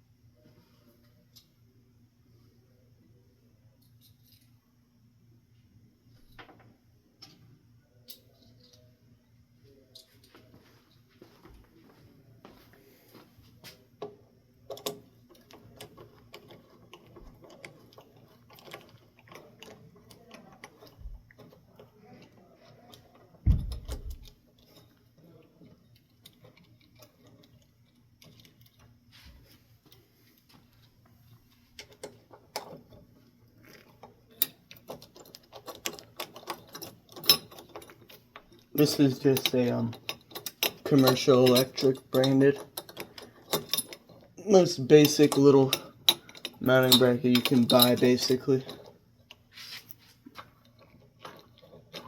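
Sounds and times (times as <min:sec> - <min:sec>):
low thump: 0:23.5 - 0:24.1
metal clinking: 0:31.7 - 0:52.0.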